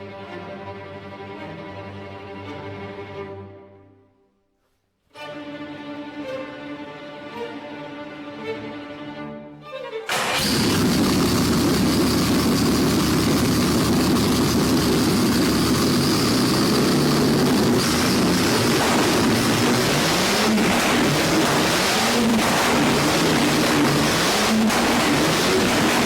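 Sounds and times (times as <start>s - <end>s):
car engine running loudly: 10.1s - 26.0s.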